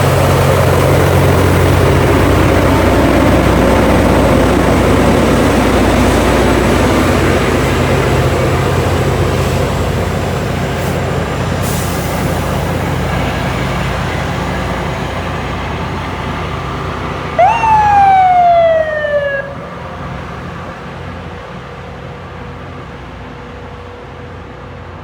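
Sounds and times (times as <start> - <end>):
train engine rumble: 0.0 - 25.0
siren whoop: 17.4 - 19.9.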